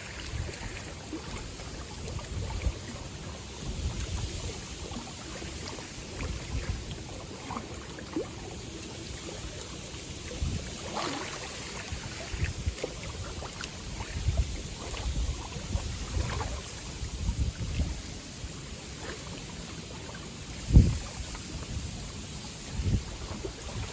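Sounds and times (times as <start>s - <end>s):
waves lapping at shore: 0.0s - 23.9s
wind buffeting microphone: 2.0s - 7.0s, 10.2s - 11.0s, 11.6s - 18.8s, 20.5s - 23.9s.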